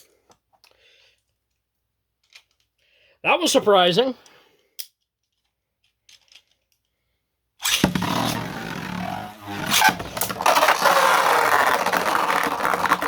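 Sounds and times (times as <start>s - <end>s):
spinning tops launched: 7.6s - 13.0s
spinning tops whirring and scraping: 7.6s - 13.0s.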